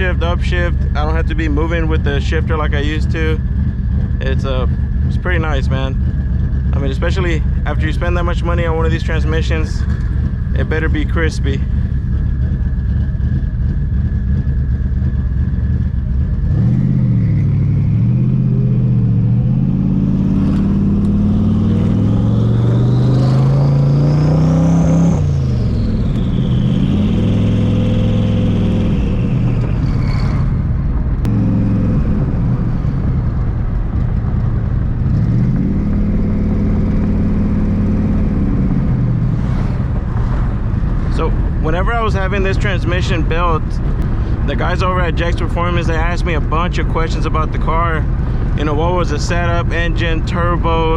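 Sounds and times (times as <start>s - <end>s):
turbo whine: 0.0s - 48.0s
car engine accelerating: 0.0s - 50.9s.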